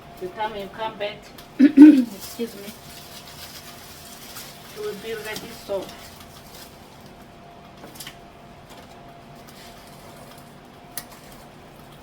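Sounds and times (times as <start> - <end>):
faint steady hum: 0.0 - 2.2.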